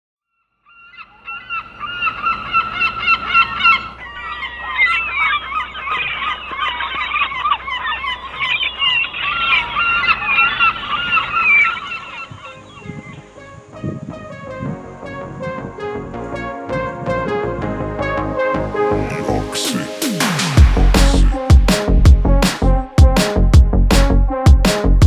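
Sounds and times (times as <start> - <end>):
gulls calling: 0.7 - 14.2.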